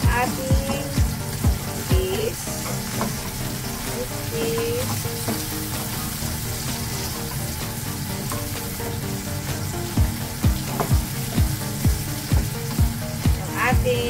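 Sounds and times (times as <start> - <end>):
vegetables sizzling in hot oil: 0.0 - 14.0
spatula scraping and tapping pan: 2.6 - 6.0, 8.2 - 8.6, 10.4 - 13.0.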